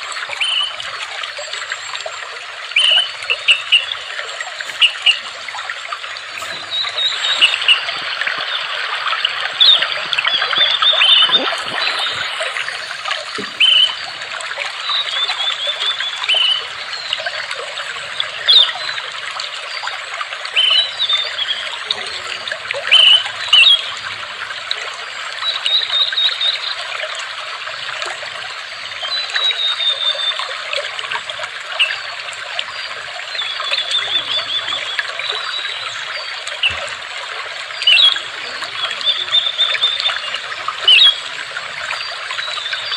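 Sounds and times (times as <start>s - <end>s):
water trickling: 0.0s - 42.9s
small birds chirping: 2.8s - 14.2s.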